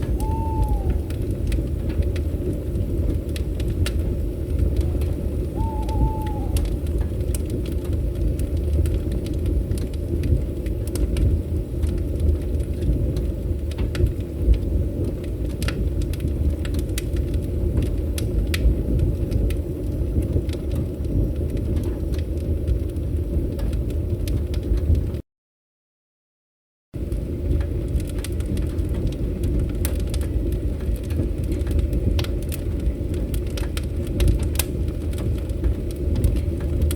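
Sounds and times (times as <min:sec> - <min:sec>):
low rumble: 0:00.0 - 0:03.1, 0:04.1 - 0:07.7
wood fire crackling: 0:00.0 - 0:25.2, 0:27.0 - 0:36.9.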